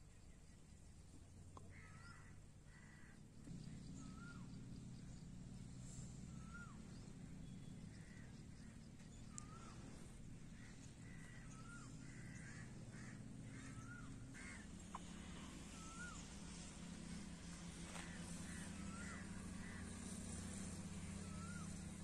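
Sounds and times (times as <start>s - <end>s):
steady low hum: 0.0s - 22.0s
faint bird calls: 0.2s - 22.0s.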